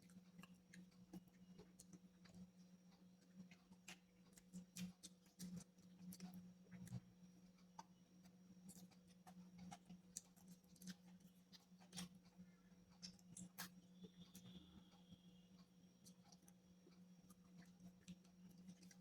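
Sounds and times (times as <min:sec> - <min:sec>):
chewing crunches: 0:03.2 - 0:07.0, 0:08.7 - 0:13.8.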